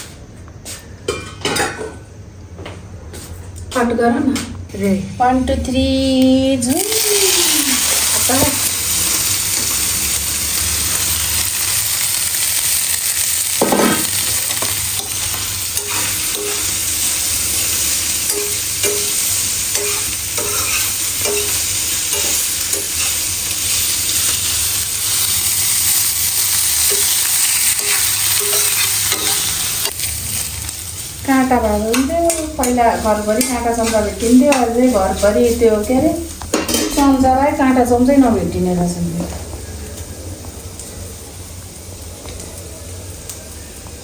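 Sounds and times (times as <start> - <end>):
cheese sizzling in a pan: 6.6 - 38.7.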